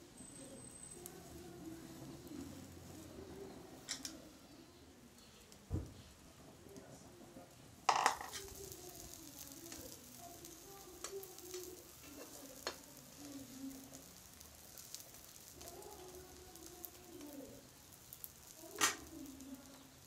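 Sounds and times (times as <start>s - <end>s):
omelette sizzling in frying pan: 0.0s - 20.0s
metal spatula tapping pan: 7.9s - 8.6s.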